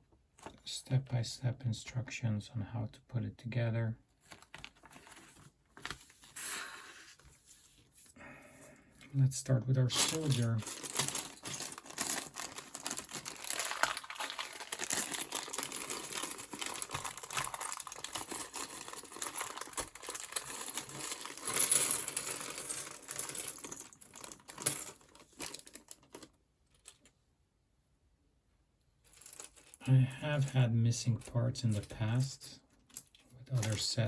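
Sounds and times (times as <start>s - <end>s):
plastic bag crinkling: 4.2s - 6.6s, 9.9s - 27.0s.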